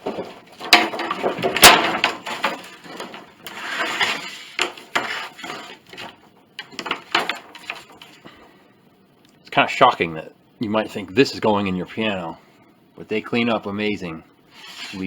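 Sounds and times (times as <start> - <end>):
wooden boards knocking and scraping: 0.0 - 8.4.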